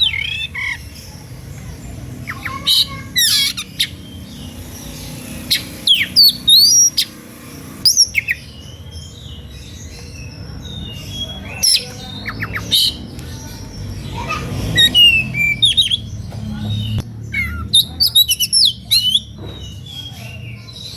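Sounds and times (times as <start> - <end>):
magpie-robin singing whistles: 5.5 - 7.2, 7.8 - 8.7, 17.3 - 20.6.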